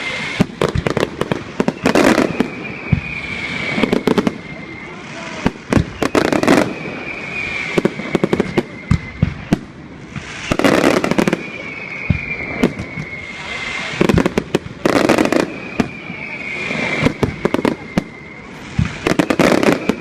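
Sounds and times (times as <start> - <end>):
firework whistle falling in pitch: 0.0 - 20.0
fireworks bangs and crackles: 0.0 - 20.0.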